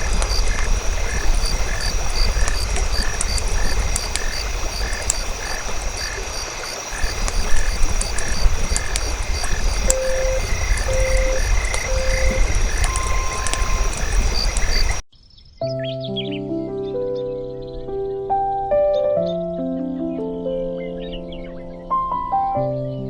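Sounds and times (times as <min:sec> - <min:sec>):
campfire crackling: 0:00.0 - 0:15.0
frogs croaking: 0:00.0 - 0:15.0
timer beeps: 0:06.9 - 0:15.0.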